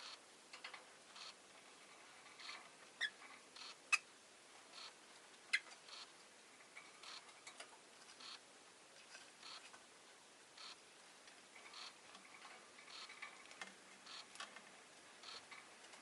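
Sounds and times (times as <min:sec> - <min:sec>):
soft even ticking: 0:04.7 - 0:08.5, 0:10.5 - 0:16.0.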